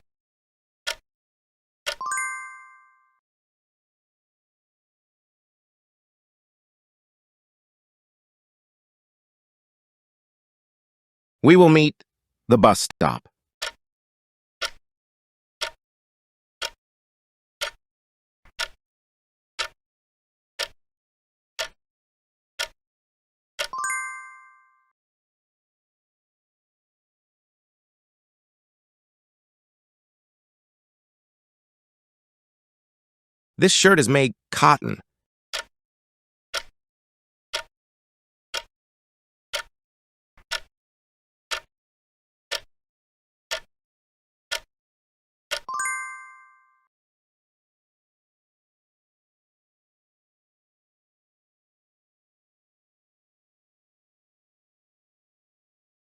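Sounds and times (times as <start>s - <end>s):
bell-like chime: 2.0s - 3.2s, 23.8s - 24.9s, 45.7s - 46.8s.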